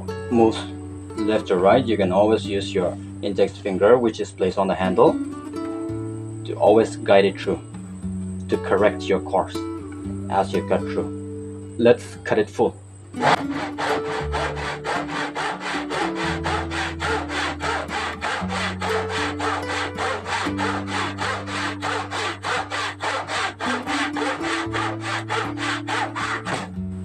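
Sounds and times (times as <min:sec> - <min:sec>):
hand saw cutting wood: 0:13.2 - 0:26.8.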